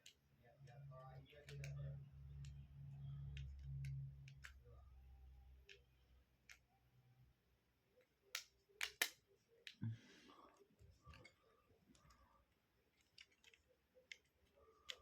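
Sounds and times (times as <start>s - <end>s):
plastic parts clicking into place: 3.2s - 4.8s, 8.0s - 9.8s, 12.9s - 15.0s.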